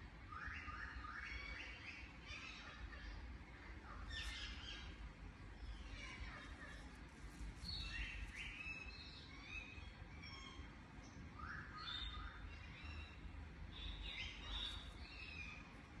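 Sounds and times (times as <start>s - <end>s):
low steady rumble: 1.9s - 16.0s
birds chirping and whistling: 7.7s - 10.7s, 11.3s - 15.8s.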